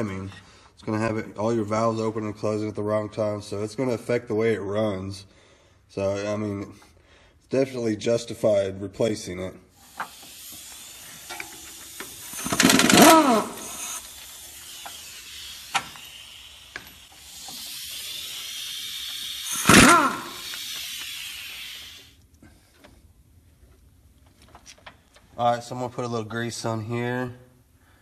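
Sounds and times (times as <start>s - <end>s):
steady hiss: 9.2s - 23.2s
air tool whirring: 9.7s - 22.2s.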